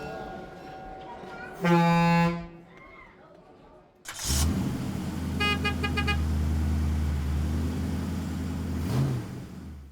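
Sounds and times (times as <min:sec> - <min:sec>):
low engine rumble: 0:04.1 - 0:09.9
vehicle horn short toots: 0:05.3 - 0:06.4.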